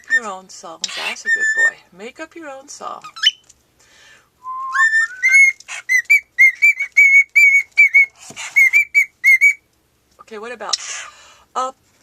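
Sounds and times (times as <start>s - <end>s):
cockatiel whistling: 0.0s - 0.2s, 1.2s - 1.7s, 4.4s - 9.6s.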